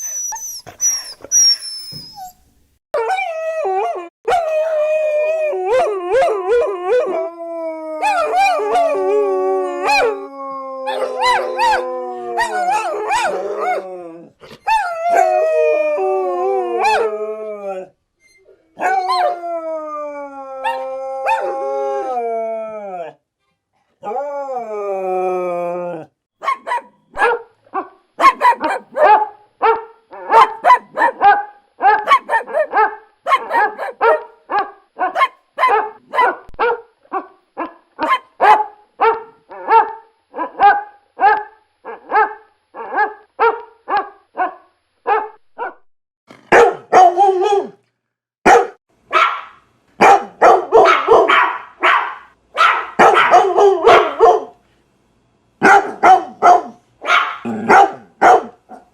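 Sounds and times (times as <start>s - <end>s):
dog howling: 3.0s - 17.9s, 18.8s - 23.2s, 24.0s - 26.1s, 53.0s - 54.5s
dog barking: 26.4s - 45.9s, 46.5s - 47.8s, 48.4s - 54.6s, 55.6s - 58.9s.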